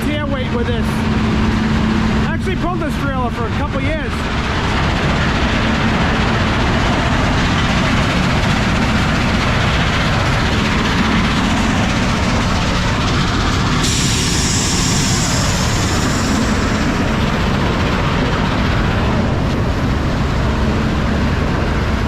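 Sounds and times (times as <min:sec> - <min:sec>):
truck engine and road rumble: 0:00.0 - 0:22.0
high hiss: 0:13.7 - 0:17.4.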